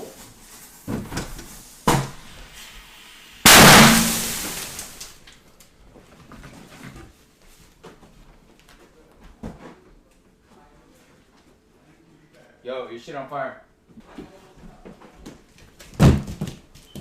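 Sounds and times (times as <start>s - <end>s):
loud firework blast: 3.4s - 5.0s
sharp knocks: 3.5s - 4.8s.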